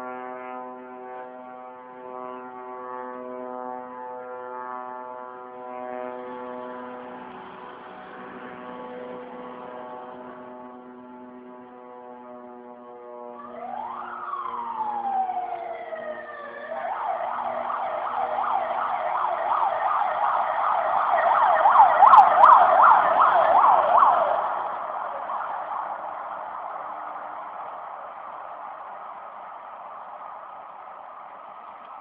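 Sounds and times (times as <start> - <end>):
drone buzzing hum: 0.0 - 13.9
emergency vehicle siren: 0.0 - 32.0.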